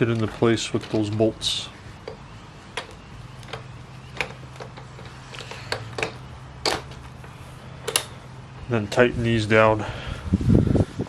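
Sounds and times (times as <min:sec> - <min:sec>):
steady low hum: 0:00.0 - 0:11.0
clicks of metal parts handled: 0:02.0 - 0:08.2.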